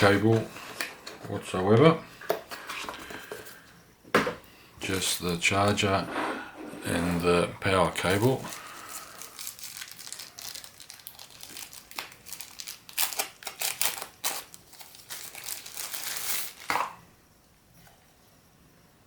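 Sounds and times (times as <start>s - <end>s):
packaging crinkling: 7.9s - 17.0s.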